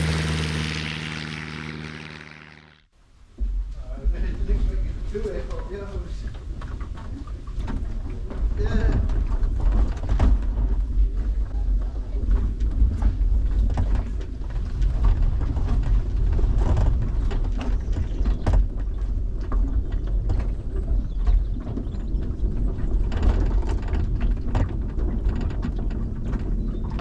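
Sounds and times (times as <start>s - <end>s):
propeller mechanical clicks and knocks: 12.6s - 27.0s.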